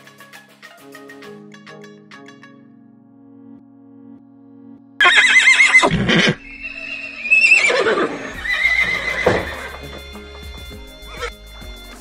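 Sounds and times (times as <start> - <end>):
horse whinnying: 5.0 - 11.3.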